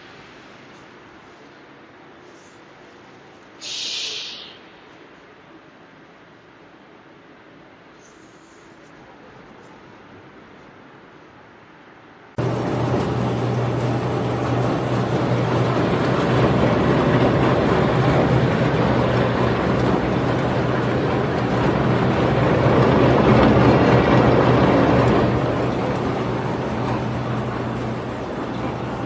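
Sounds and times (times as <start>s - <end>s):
mechanical noise of machine: 12.4s - 29.0s
motor hum: 12.4s - 29.0s.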